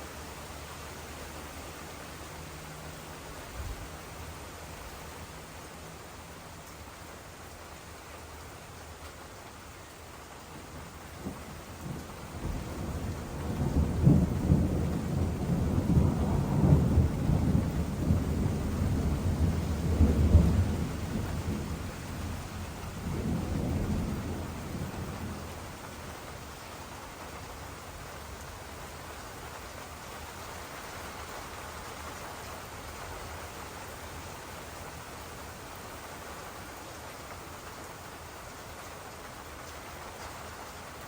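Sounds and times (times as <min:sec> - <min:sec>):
rolling thunder rumble: 0:10.7 - 0:26.1.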